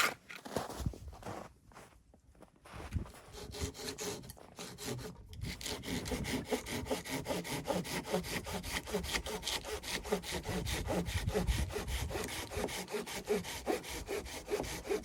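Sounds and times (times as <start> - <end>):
hand saw cutting wood: 0.0 - 0.2, 3.3 - 15.0.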